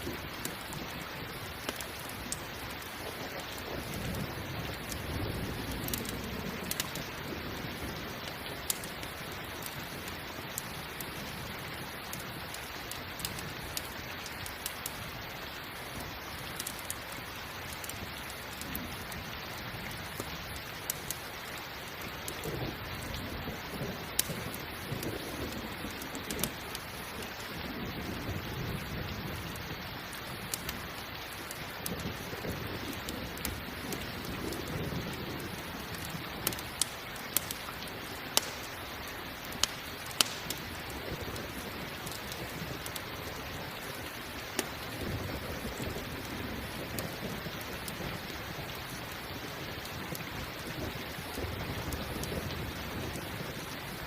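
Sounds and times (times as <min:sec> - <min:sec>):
campfire crackling and popping: 0:00.0 - 0:54.0
heavy rain: 0:00.0 - 0:54.0
rolling thunder: 0:03.5 - 0:08.2.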